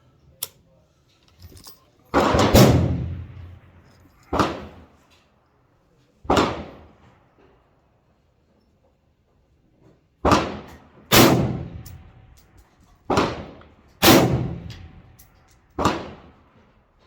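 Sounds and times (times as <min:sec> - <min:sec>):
rifle shots with echo: 0:02.1 - 0:04.9, 0:06.3 - 0:07.0, 0:10.2 - 0:12.3, 0:13.1 - 0:15.2, 0:15.8 - 0:16.4.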